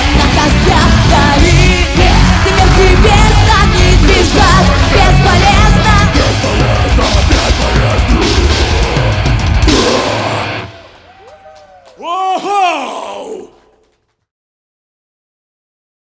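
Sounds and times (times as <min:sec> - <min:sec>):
person singing: 0:00.0 - 0:09.2, 0:12.0 - 0:13.6
live rock band playing: 0:00.0 - 0:11.1.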